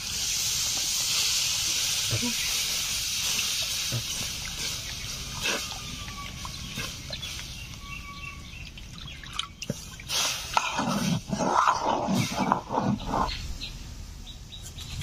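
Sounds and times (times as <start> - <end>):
hiss: 0.0 - 7.6, 10.1 - 11.2
thin bird chirps: 4.1 - 10.2, 12.1 - 15.0.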